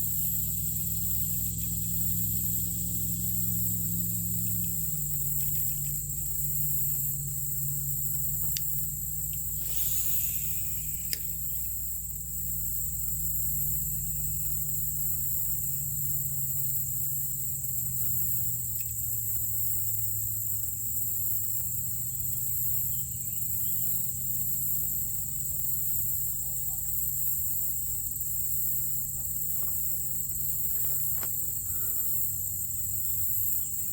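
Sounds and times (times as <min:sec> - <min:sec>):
insects chirping: 0:00.0 - 0:33.9
low steady hum: 0:00.0 - 0:33.9.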